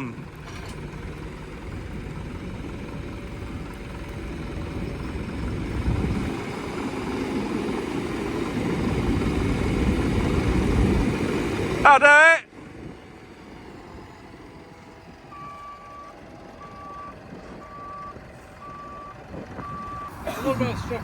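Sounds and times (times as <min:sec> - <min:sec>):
tractor engine rumbling: 0:00.0 - 0:21.0.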